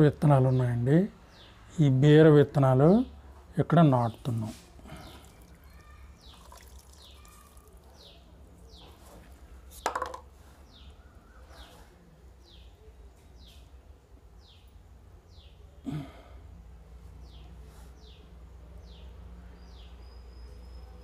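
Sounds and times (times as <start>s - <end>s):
high falling bird chirp: 4.9s - 9.9s.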